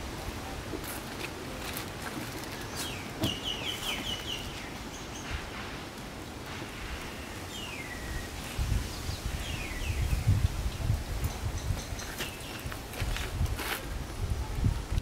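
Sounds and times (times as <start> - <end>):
outdoor hiss: 0.0 - 14.9
bird chirping: 2.6 - 5.4, 7.0 - 12.7.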